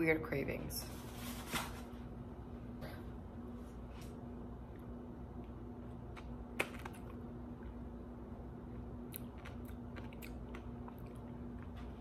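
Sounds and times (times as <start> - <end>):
chewing with small crunches: 8.6 - 12.0.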